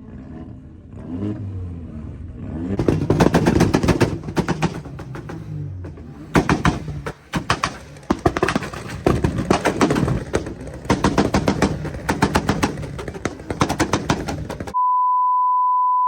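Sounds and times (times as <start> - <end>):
car exhaust crackling and popping: 2.8 - 14.8.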